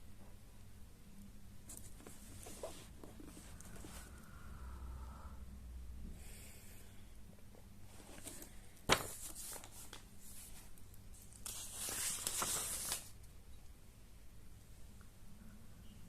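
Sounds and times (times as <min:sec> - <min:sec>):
rustling or scraping: 0:01.7 - 0:04.2.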